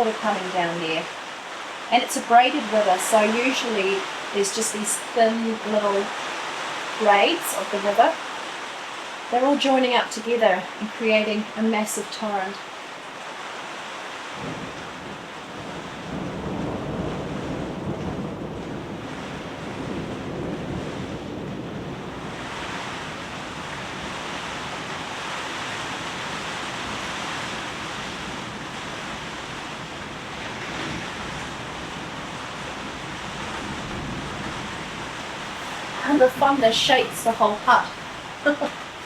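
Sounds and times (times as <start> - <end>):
flooding river rushing: 0.0 - 39.0
heavy rain: 0.0 - 39.0
wind: 0.0 - 39.0
low rumble of thunder: 14.3 - 39.0.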